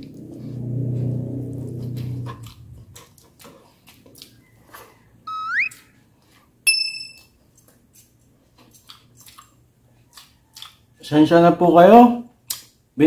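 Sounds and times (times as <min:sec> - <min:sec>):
chewing and lip smacks: 0:01.6 - 0:06.5, 0:07.2 - 0:11.0, 0:12.4 - 0:12.8
rising whistle sound effect: 0:05.3 - 0:05.8
bright bell ding: 0:06.7 - 0:07.2.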